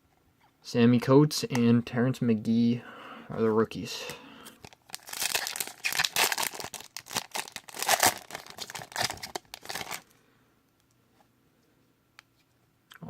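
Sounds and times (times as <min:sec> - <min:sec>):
card pack wrapper crinkling and tearing: 0:04.6 - 0:10.1.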